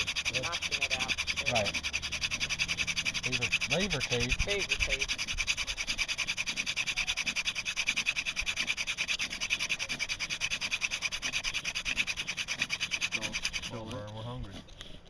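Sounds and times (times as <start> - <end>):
wood rubbing on wood: 0.0 - 15.0.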